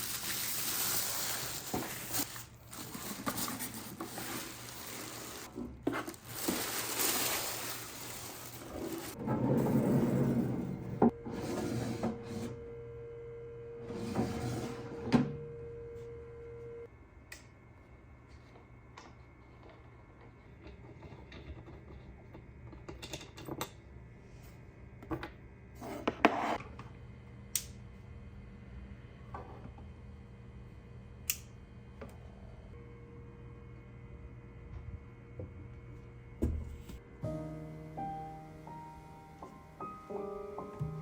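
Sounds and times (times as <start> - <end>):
faint steady hum: 12.1 - 14.2, 15.1 - 20.5.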